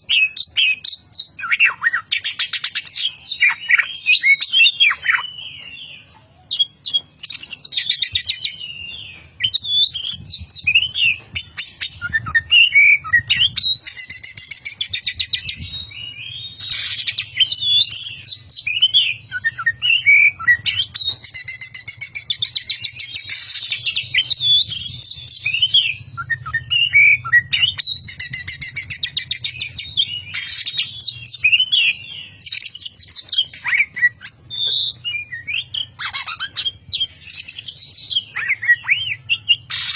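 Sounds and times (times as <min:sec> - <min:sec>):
bird singing whistles and chatter: 0:00.0 - 0:39.9.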